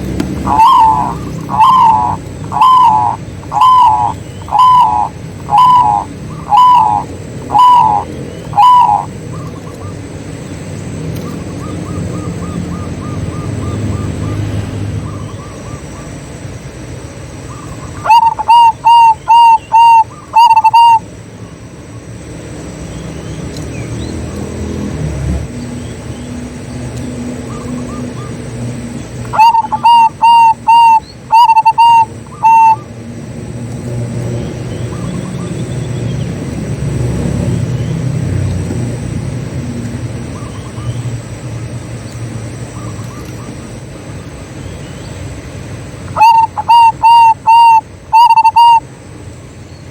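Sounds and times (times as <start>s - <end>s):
dove cooing song: 0.0s - 10.1s, 17.5s - 21.1s, 27.1s - 37.6s, 46.0s - 48.9s
low steady rumble: 0.0s - 49.9s.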